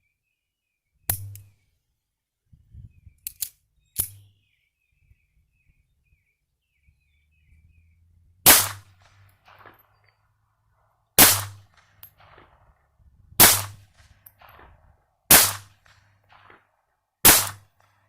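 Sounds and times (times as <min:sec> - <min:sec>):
faint bird chirps: 0:02.5 - 0:08.2
pistol shots: 0:08.4 - 0:10.2, 0:11.2 - 0:18.0.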